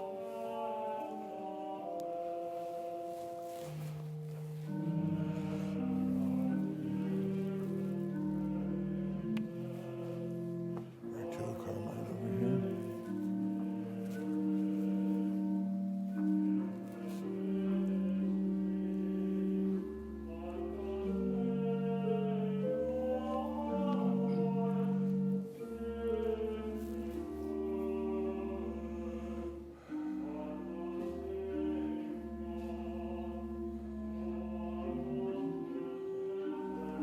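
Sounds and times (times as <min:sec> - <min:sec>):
hymn chords over bass: 0:04.7 - 0:16.6
voices singing: 0:09.2 - 0:15.4.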